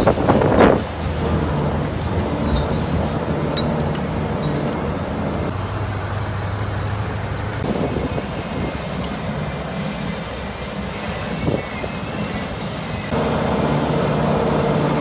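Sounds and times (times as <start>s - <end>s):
heavy machine engine drone: 0.0s - 15.0s
faint metallic clinks: 0.2s - 7.7s.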